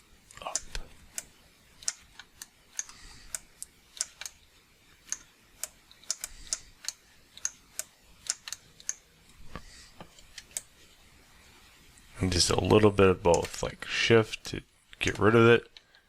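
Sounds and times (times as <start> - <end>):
mouse and keyboard clicking: 0.5 - 4.4, 5.0 - 9.0.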